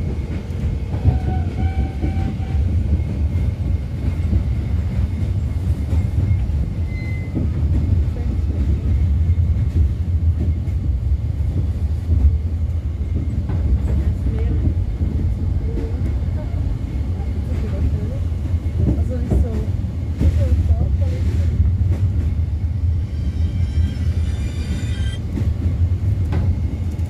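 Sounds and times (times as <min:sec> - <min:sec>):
train wheels rumbling: 0:00.0 - 0:27.0.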